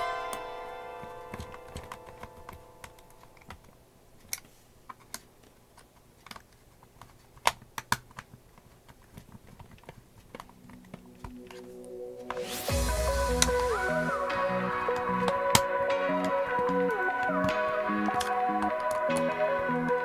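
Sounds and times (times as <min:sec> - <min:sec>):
plastic parts clicking: 0:01.3 - 0:11.6.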